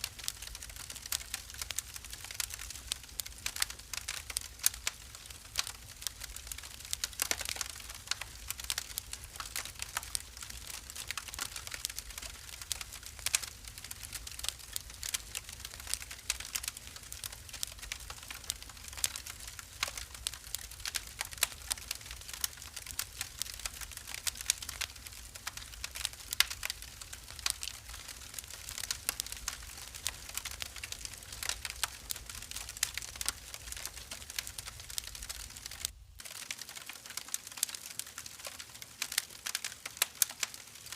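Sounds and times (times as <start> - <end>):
low steady fire rumble: 0.0 - 40.9
wood fire crackling and popping: 0.0 - 40.9.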